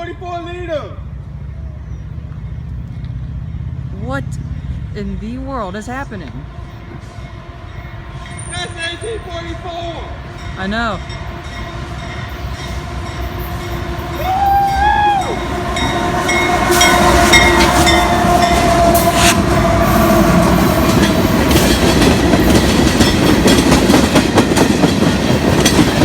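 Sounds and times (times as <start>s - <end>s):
train rumbling past: 0.0s - 26.0s
wheels clicking over rail joints: 20.4s - 26.0s.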